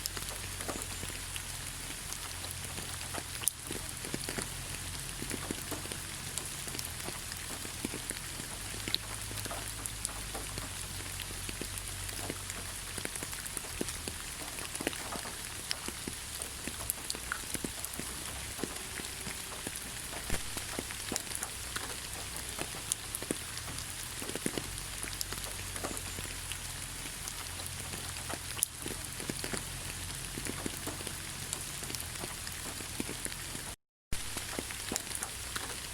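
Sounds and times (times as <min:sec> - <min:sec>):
rain falling in forest: 0:00.0 - 0:35.9
raindrops ticking on leaves: 0:00.0 - 0:35.9.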